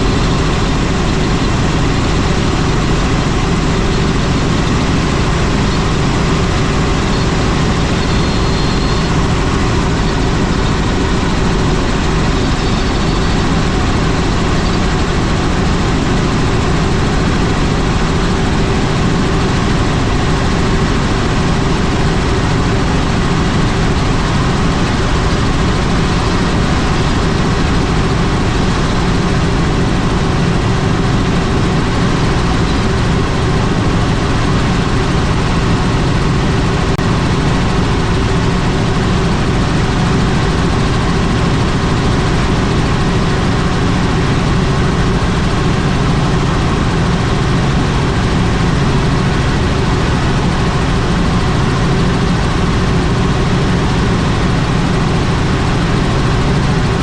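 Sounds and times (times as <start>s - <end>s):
helicopter engine and rotor: 0.0s - 57.0s.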